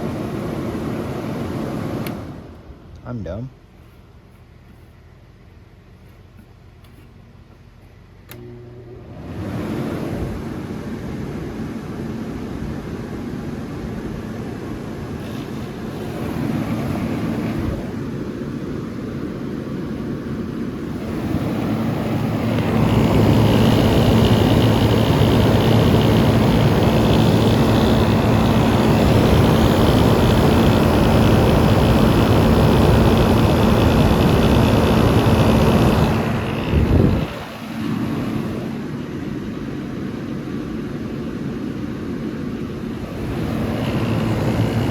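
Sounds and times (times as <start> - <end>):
air conditioner fan blowing: 0.0 - 44.9
low compressor hum: 17.4 - 44.9.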